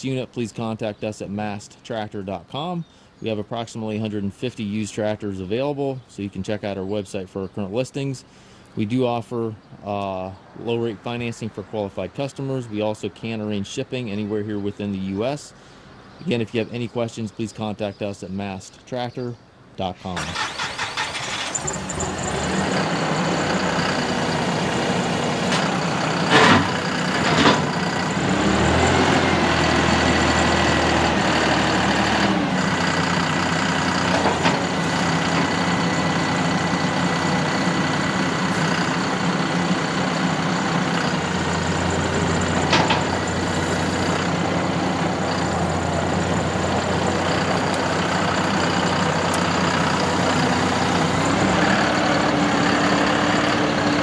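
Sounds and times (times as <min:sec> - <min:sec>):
engine knocks: 0:20.2 - 0:54.0
tractor diesel engine idling: 0:20.2 - 0:54.0.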